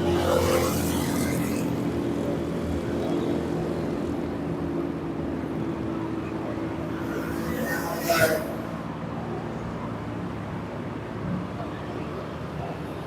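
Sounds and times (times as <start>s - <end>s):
passing vehicle rush: 0.0s - 10.3s.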